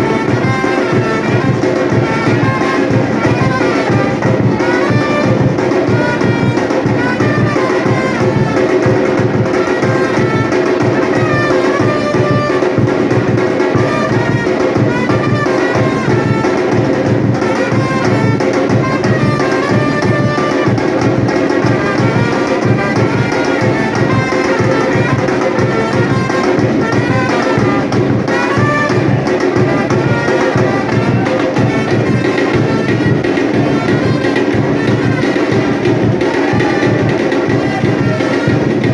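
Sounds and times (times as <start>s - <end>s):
brass melody: 0.0s - 38.9s
drum ensemble rhythm: 0.0s - 38.9s.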